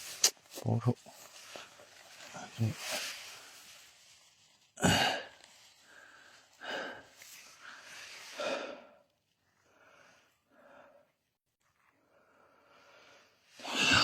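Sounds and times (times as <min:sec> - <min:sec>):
person breathing close to microphone: 0:04.8 - 0:09.0.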